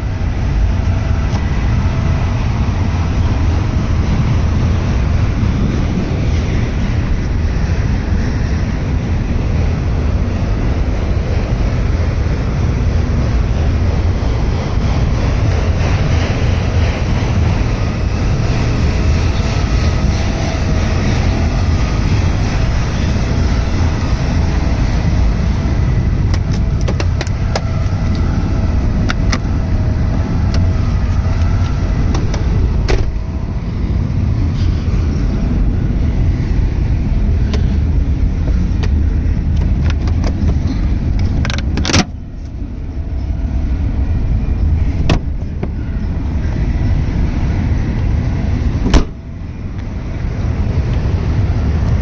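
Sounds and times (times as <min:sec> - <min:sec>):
car engine idling: 0:00.0 - 0:52.0
faint wavering whine: 0:42.1 - 0:51.7.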